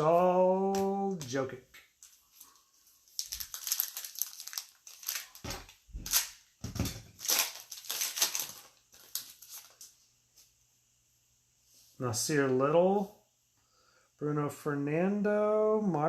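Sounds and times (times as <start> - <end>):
wrappers crinkling: 0.8 - 10.0.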